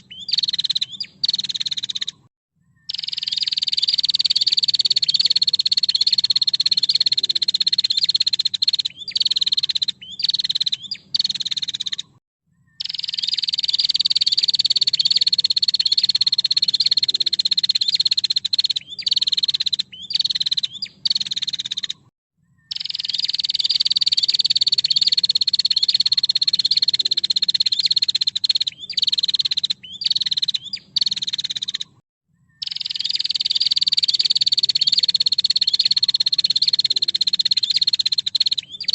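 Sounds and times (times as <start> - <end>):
bird buzzing trill: 22.7 - 31.8.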